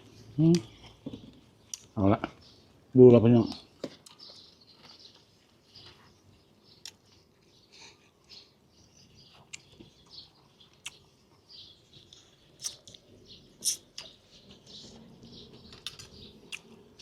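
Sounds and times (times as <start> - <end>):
chewing and mouth noises: 9.3 - 17.0.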